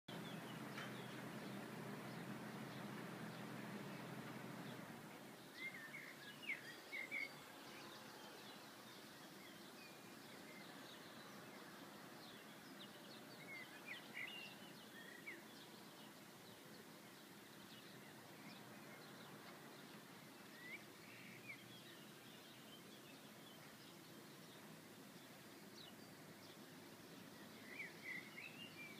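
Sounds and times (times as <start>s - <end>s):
bird chirps: 27.4s - 28.9s.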